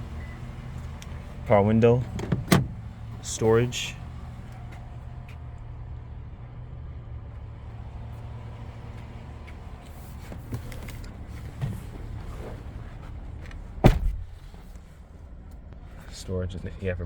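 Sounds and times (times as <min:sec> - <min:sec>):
truck engine idling: 0:00.0 - 0:16.8
truck door shutting: 0:01.9 - 0:03.6, 0:13.8 - 0:14.6.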